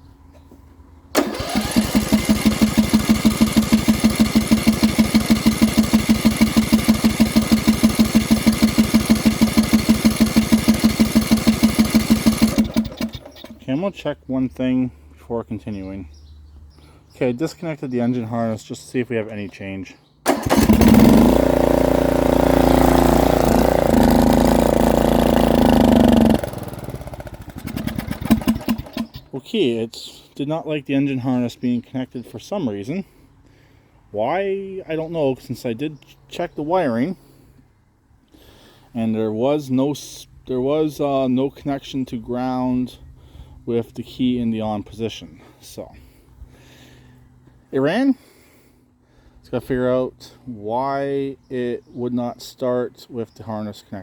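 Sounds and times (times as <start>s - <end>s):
lawn mower engine cranking: 1.1s - 13.8s, 20.2s - 29.3s.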